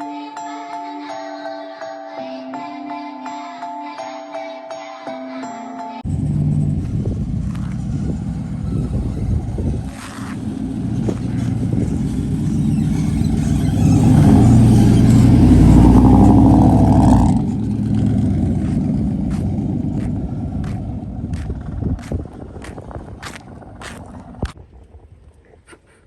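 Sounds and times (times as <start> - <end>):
pickup truck engine revving: 6.1 - 24.6.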